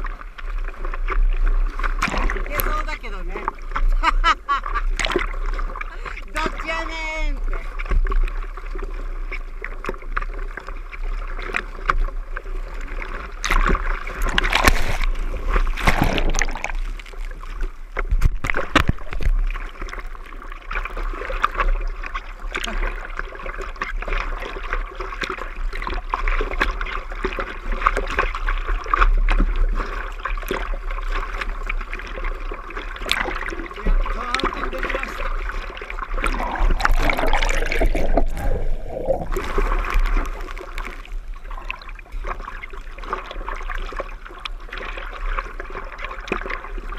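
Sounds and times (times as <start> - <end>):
water washing around board: 0.0 - 46.9
hands splashing through water: 13.4 - 19.5, 36.1 - 41.1.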